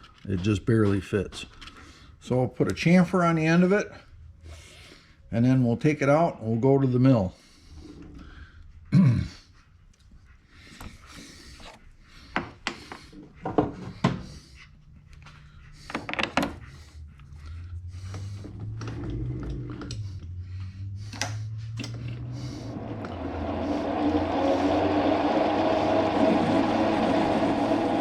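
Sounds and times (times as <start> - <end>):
lathe motor humming: 18.6 - 28.0.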